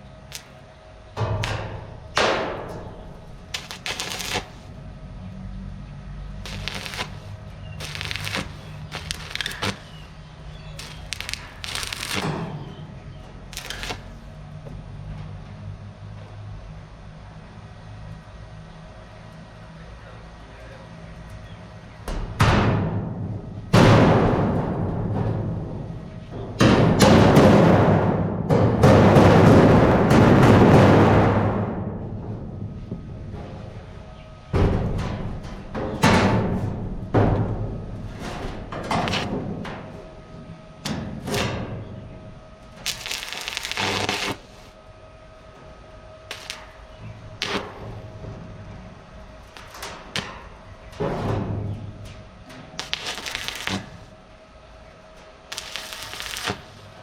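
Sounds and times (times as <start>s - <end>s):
rasping rush: 6.5s - 10.1s.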